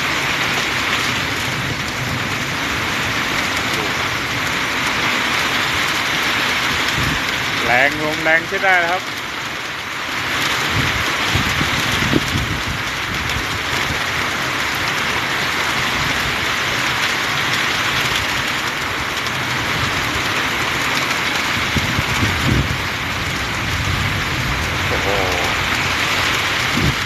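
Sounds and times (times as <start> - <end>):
heavy rain pouring: 0.0 - 27.0
wind buffeting microphone: 6.6 - 7.6, 10.6 - 14.2, 21.1 - 27.0.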